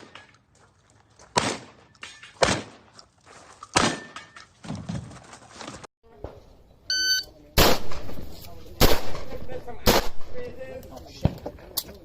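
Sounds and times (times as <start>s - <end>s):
shotgun blasts: 1.4s - 1.8s, 2.4s - 2.8s, 7.6s - 10.4s.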